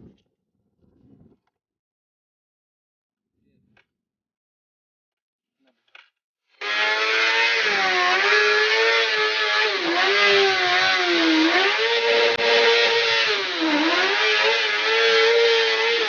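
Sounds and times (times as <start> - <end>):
motorcycle engine revving high: 9.5 - 16.0.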